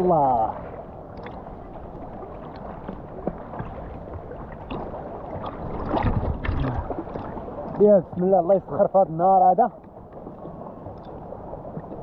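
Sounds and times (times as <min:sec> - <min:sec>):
water sloshing and gurgling: 0:00.0 - 0:12.0
small knocks and splashes: 0:02.4 - 0:08.2.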